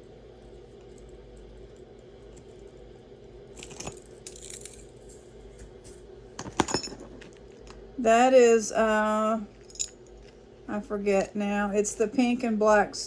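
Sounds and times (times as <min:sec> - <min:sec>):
faint steady hum: 0:00.0 - 0:13.0
metal jewelry clinking: 0:03.5 - 0:05.5, 0:06.4 - 0:07.8, 0:09.5 - 0:10.3.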